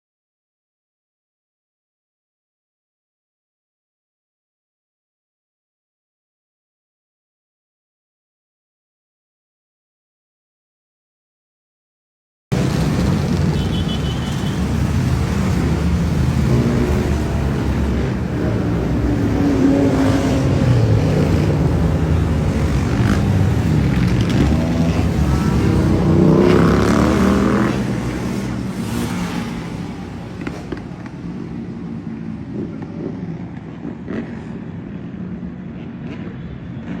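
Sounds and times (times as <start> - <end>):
motorcycle engines revving: 12.5 - 37.0
traffic: 12.5 - 37.0.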